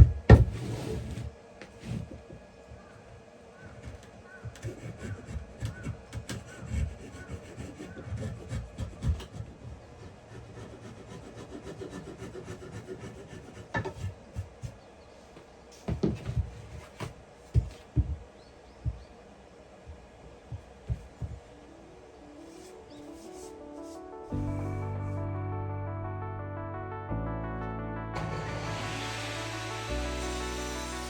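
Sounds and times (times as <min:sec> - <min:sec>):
wood being rubbed: 0:04.6 - 0:14.8, 0:22.5 - 0:24.4, 0:28.2 - 0:31.0.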